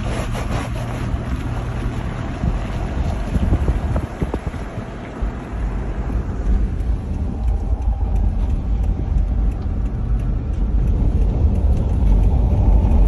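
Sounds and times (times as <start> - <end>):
wind buffeting microphone: 1.0 - 13.0.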